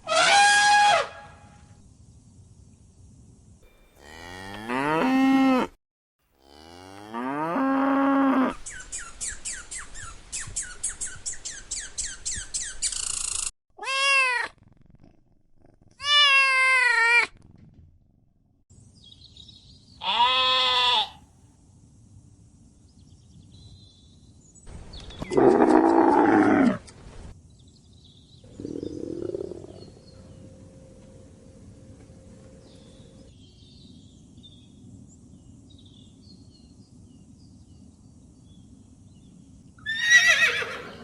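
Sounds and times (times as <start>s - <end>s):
cattle mooing: 4.0s - 5.8s
cat meowing: 13.8s - 14.5s, 16.0s - 17.3s.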